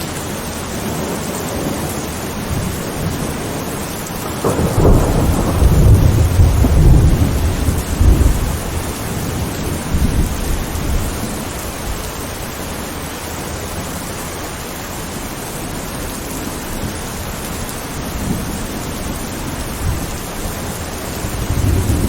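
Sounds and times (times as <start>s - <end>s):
steady rain hiss: 0.0s - 22.0s
thunder rumbling: 0.7s - 12.1s, 16.4s - 22.0s.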